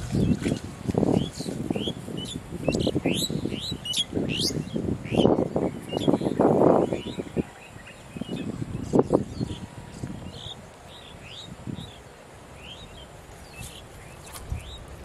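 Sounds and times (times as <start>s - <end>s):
close rustling and crackling: 0.0s - 3.2s, 13.2s - 15.0s
small birds chirping: 0.0s - 15.0s.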